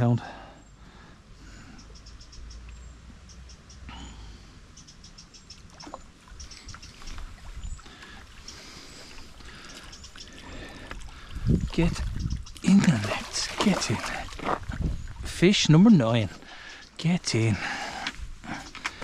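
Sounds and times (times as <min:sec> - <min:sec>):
fish splashing in water: 0:12.1 - 0:14.6.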